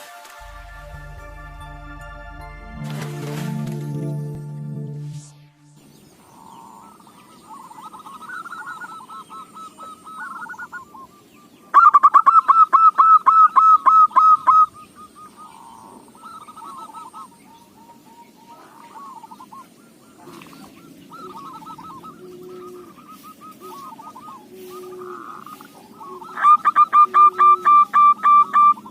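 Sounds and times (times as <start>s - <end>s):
doves cooing: 6.2s - 11.2s, 11.8s - 28.9s.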